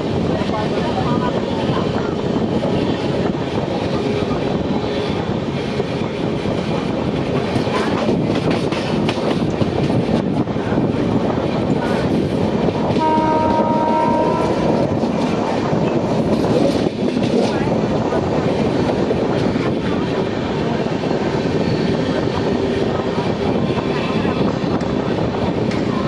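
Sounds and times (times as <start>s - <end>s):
train rumble and clatter: 0.0s - 26.0s
train horn: 12.8s - 15.1s.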